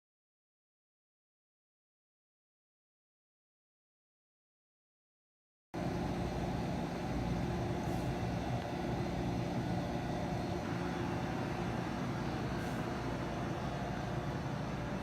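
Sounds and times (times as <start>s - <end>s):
vacuum pump running: 5.8s - 15.0s.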